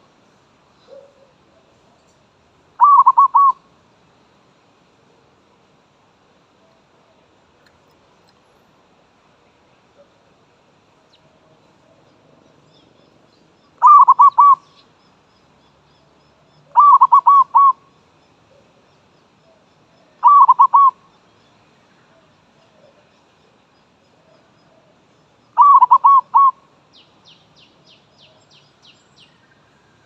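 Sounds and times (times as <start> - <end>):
dove cooing: 2.8 - 3.6, 13.8 - 14.7, 16.7 - 17.8, 20.2 - 21.0, 25.6 - 26.6.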